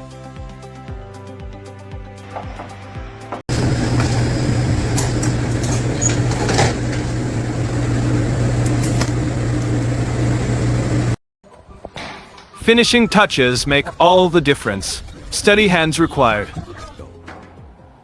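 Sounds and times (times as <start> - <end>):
machine humming and rattling: 3.5 - 11.2.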